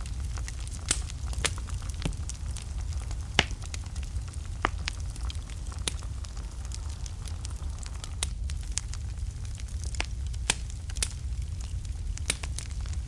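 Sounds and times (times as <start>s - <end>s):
fire crackling and popping: 0.0s - 13.0s
low rumble of flame: 0.0s - 13.0s.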